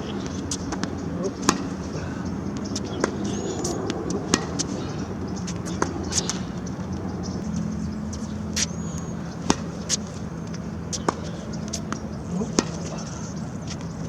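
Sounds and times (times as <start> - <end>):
steady low hum: 0.0 - 14.0
tennis ball bouncing: 0.1 - 7.3, 8.4 - 13.9
racquet striking tennis ball: 0.2 - 1.9, 2.5 - 4.8, 5.5 - 6.6, 9.4 - 12.9.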